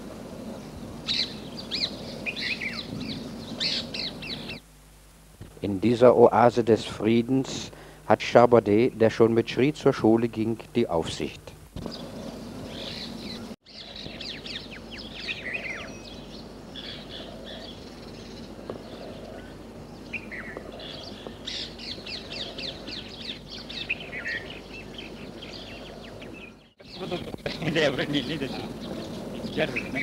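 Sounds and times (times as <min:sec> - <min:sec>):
small birds chirping: 0:00.0 - 0:04.7, 0:11.0 - 0:30.0
steady low background noise: 0:00.0 - 0:30.0.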